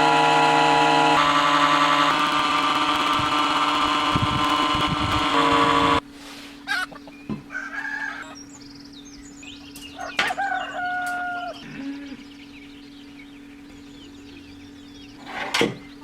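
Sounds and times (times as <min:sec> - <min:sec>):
rooster crowing: 0:10.0 - 0:11.6.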